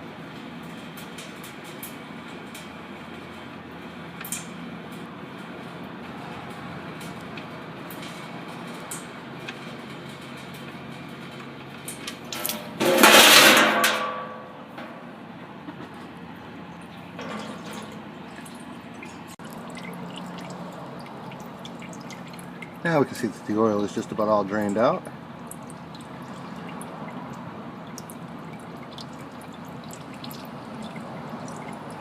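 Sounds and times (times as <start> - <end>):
oil pouring into bucket: 16.9 - 32.0.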